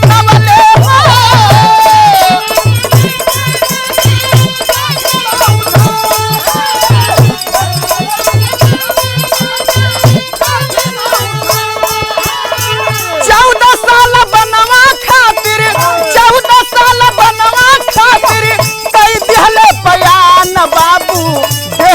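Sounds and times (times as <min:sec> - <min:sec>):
low drum beats: 0:00.0 - 0:16.6
jingling rattling percussion: 0:00.0 - 0:21.9.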